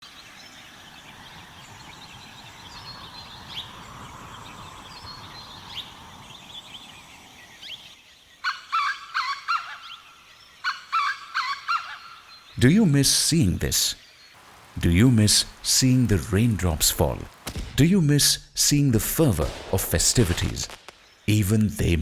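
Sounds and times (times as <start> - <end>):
birds chirping: 0.0 - 22.0
loud rapid bird call: 0.4 - 10.0, 10.6 - 12.3.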